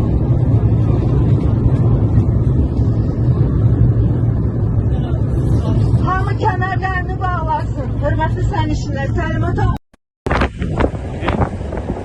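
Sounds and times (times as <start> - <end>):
rushing air: 0.0 - 7.0, 10.3 - 12.0
airliner engines roaring in cabin: 0.0 - 9.8, 10.4 - 12.0.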